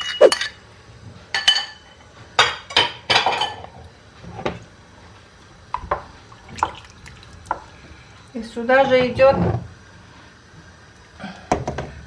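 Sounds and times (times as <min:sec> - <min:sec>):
utensils clinking on dishes: 0:01.3 - 0:03.7.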